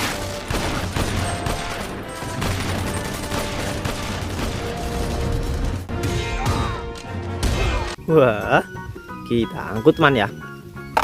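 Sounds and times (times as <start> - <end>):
rapid gunfire: 0.0 - 5.9.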